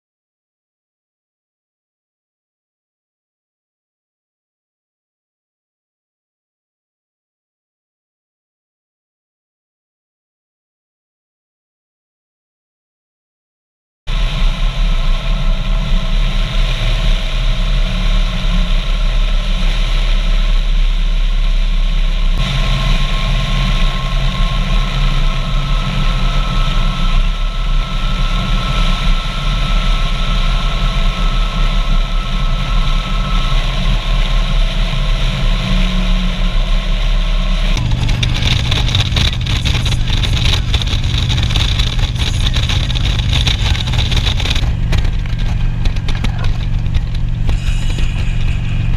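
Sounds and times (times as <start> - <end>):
motorcycle engine running: 14.1 - 48.9
road noise: 14.1 - 48.9
wind: 14.1 - 48.9.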